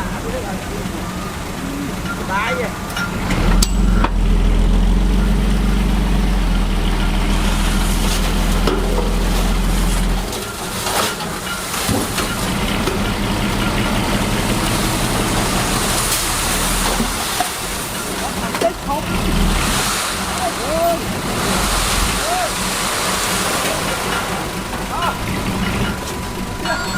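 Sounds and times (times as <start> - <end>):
diesel engine droning: 0.0 - 26.9.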